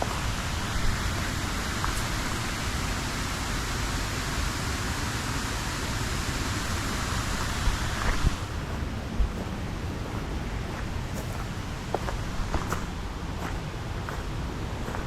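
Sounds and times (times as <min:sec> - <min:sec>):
water rushing over rocks: 0:00.0 - 0:08.6.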